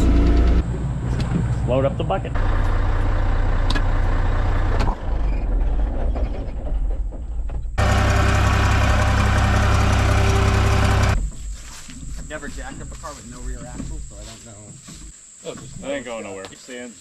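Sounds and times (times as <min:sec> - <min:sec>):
skid steer engine running: 0:00.0 - 0:00.8, 0:02.4 - 0:06.5, 0:07.8 - 0:11.2.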